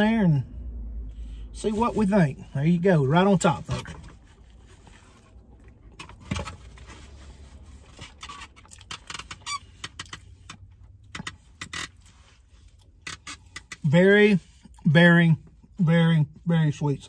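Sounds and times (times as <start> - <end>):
vehicle cabin hum: 0.0 - 17.0
person biting and chewing: 8.2 - 10.2.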